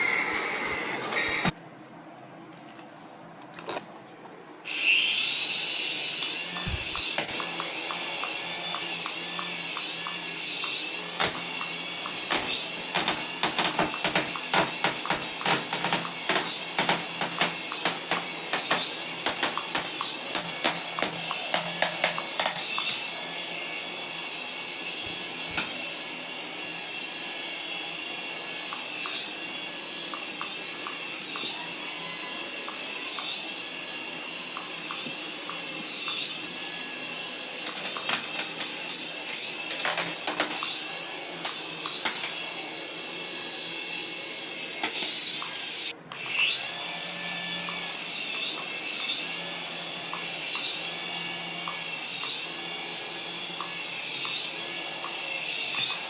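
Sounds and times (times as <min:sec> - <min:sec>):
electric toy motor whining: 0:00.0 - 0:01.6, 0:04.7 - 0:56.0.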